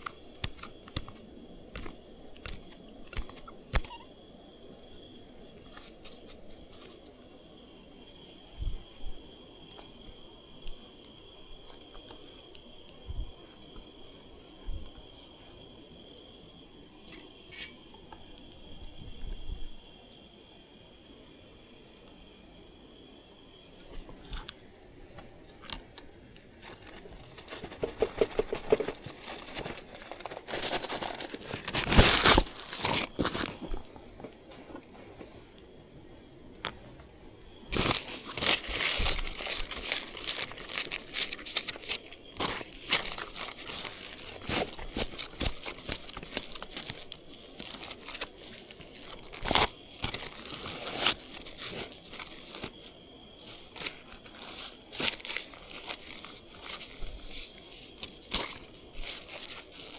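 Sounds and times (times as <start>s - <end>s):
crinkling and rustling: 0.0s - 4.1s, 25.2s - 35.5s, 37.6s - 59.9s.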